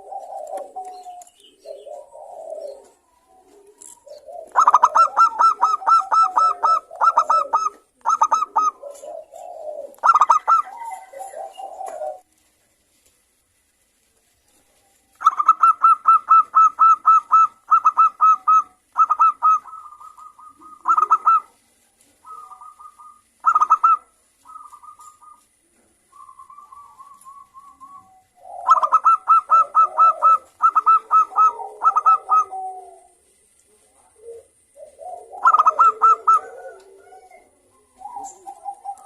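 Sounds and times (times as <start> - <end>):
doves cooing rapidly: 0.0 - 12.3, 15.2 - 39.0
lower rougher cooing: 0.0 - 12.3, 15.2 - 21.6, 26.1 - 33.2, 33.9 - 39.0.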